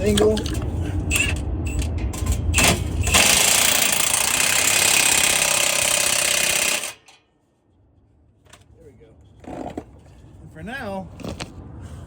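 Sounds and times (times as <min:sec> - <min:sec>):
power tool driving a bolt: 0:02.6 - 0:07.2.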